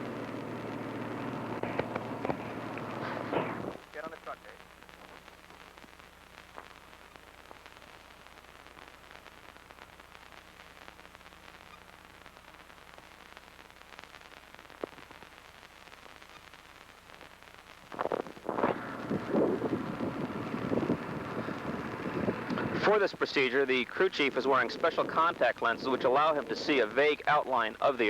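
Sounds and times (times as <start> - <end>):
low hum: 0.0 - 3.8, 18.0 - 22.8
old recording hiss and crackle: 0.0 - 28.0
wind gusts on microphone: 18.0 - 23.0.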